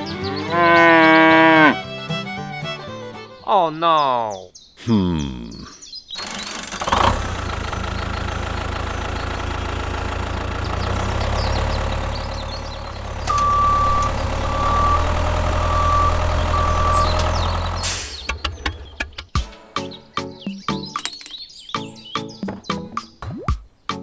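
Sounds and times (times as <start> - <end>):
diesel engine idling: 0.0 - 2.0, 6.2 - 19.4
reversing alarm beeping: 11.0 - 18.4.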